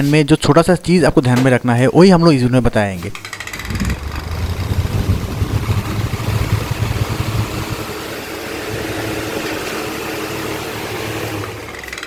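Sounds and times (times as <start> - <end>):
electric fan humming: 3.0 - 12.0.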